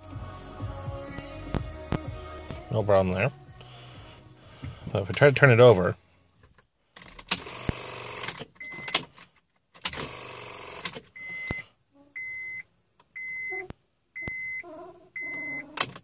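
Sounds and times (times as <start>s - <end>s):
dashboard warning beeps: 8.6s - 9.0s, 11.2s - 15.7s.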